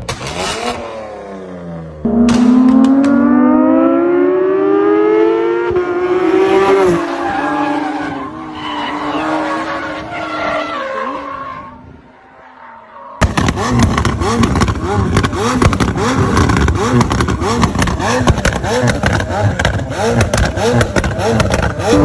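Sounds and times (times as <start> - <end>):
cars accelerating on race track: 0.0 - 22.0
sports car engine revving: 0.1 - 7.1, 13.2 - 22.0.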